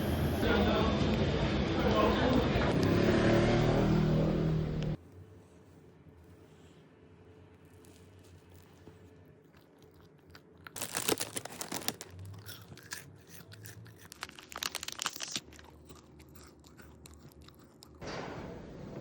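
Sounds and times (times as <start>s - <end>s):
crunching on crusty bread: 7.6s - 18.0s.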